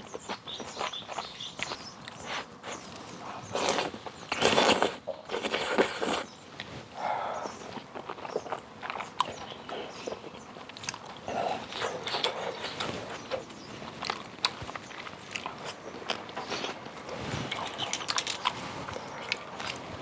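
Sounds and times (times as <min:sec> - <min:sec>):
wet chewing and biting: 0:03.5 - 0:06.3, 0:07.4 - 0:20.0
small clicks and crunches: 0:07.8 - 0:20.0.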